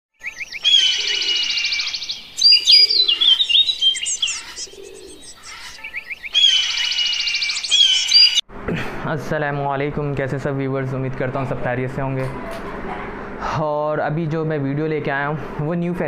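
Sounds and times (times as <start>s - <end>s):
small birds singing: 0.2s - 8.4s.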